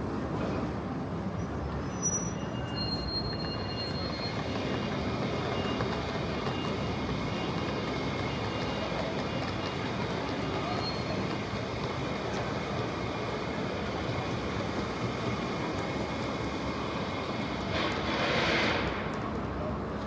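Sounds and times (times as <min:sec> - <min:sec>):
tram rumbling on rails: 0:00.0 - 0:20.0
high wheel squeal: 0:01.3 - 0:11.6.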